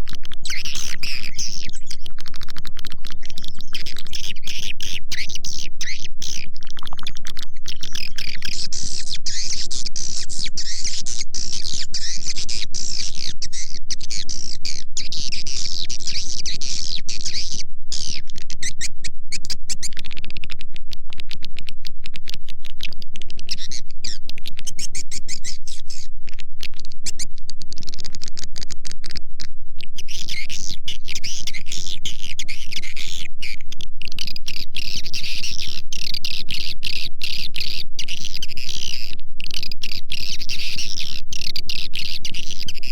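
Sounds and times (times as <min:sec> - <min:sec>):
high-pitched bird twittering: 0:00.0 - 0:20.1, 0:22.8 - 0:27.3.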